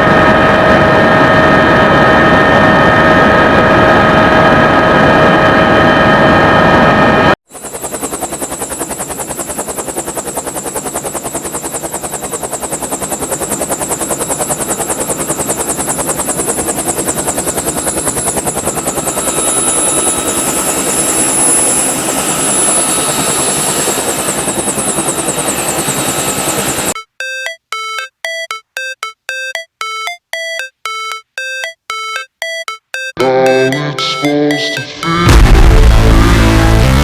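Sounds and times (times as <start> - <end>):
helicopter rotor chopping: 7.5 - 36.0
chiming electronic tune: 25.7 - 35.7.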